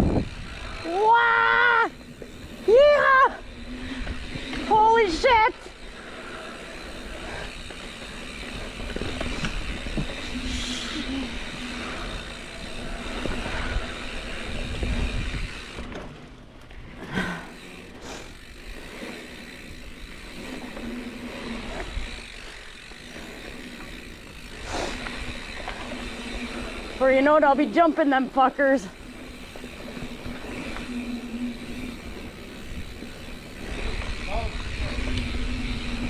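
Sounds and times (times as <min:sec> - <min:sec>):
wind rushing over microphone: 0:00.0 - 0:01.1, 0:08.4 - 0:15.8
bike tyre noise on dirt: 0:00.0 - 0:36.0.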